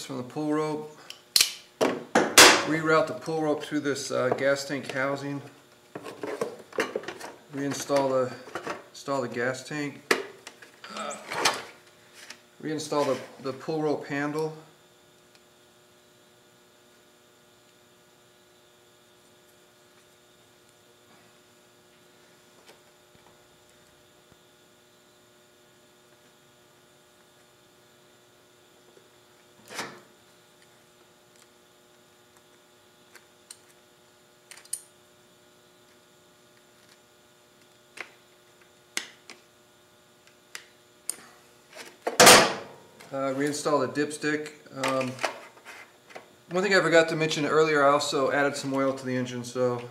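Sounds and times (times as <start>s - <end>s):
faint electrical hum: 0.0s - 49.9s
clicks and knocks of parts handled: 34.5s - 34.9s.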